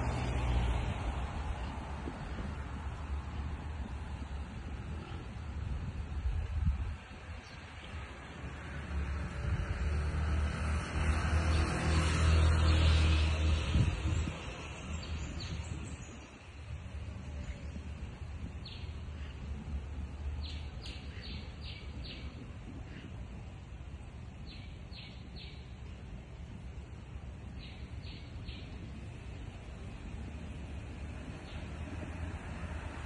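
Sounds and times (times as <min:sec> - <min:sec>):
steady low rumble: 0:00.0 - 0:09.8, 0:13.3 - 0:33.0
bird chirping: 0:20.4 - 0:23.1, 0:24.4 - 0:26.0, 0:27.5 - 0:28.8.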